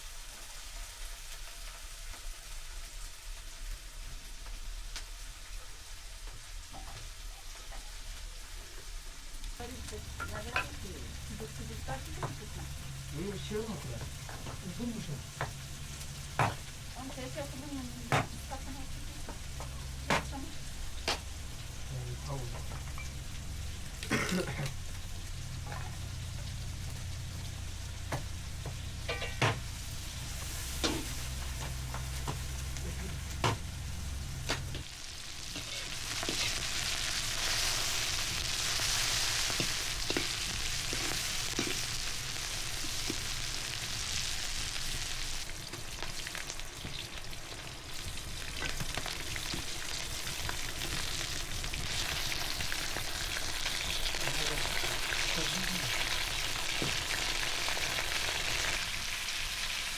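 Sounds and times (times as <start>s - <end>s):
food sizzling in a pan: 0.0s - 59.9s
low hum: 9.6s - 34.9s
utensil knocking against pan: 15.3s - 16.8s, 18.1s - 18.5s, 19.2s - 20.4s, 28.1s - 29.8s, 33.3s - 33.7s.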